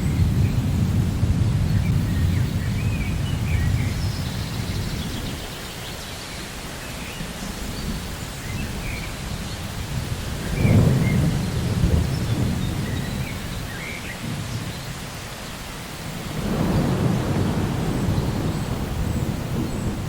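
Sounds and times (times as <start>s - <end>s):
thunder rumbling: 0.0s - 5.5s, 8.7s - 15.1s, 16.0s - 20.0s
rain hissing: 0.0s - 20.0s.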